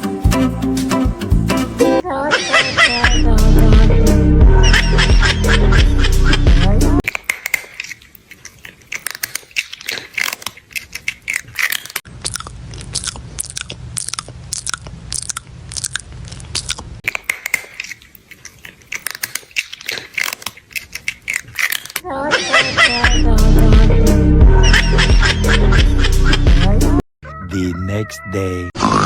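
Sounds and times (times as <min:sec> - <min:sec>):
crunchy chewing and biting: 0:07.0 - 0:22.0.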